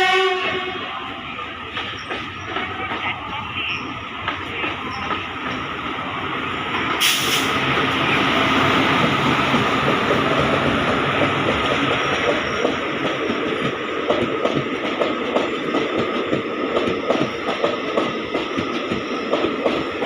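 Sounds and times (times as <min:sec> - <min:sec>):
train wheels rumbling and rattling: 0:00.0 - 0:20.0
burst of hiss: 0:07.0 - 0:07.6.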